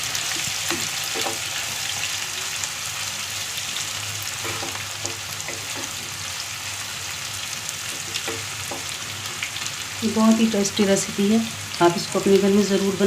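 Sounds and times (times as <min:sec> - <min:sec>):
onions sizzling in hot oil: 0:00.0 - 0:13.0
spatula stirring pan: 0:00.1 - 0:02.6, 0:04.2 - 0:06.6, 0:07.8 - 0:09.8.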